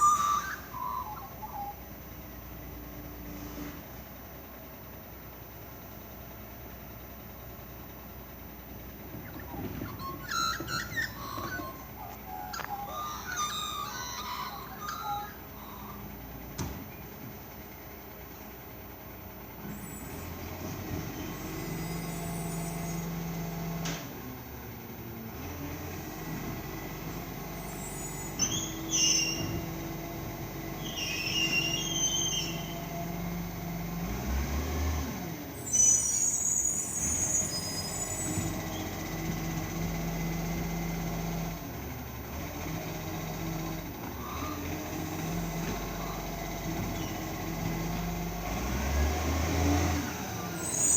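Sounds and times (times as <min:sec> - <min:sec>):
short high squeals: 0:00.0 - 0:01.9, 0:09.2 - 0:16.4, 0:19.6 - 0:20.3, 0:21.2 - 0:23.3, 0:27.4 - 0:30.1, 0:30.7 - 0:33.3, 0:35.6 - 0:39.9, 0:44.1 - 0:50.9
truck engine running: 0:00.0 - 0:50.9.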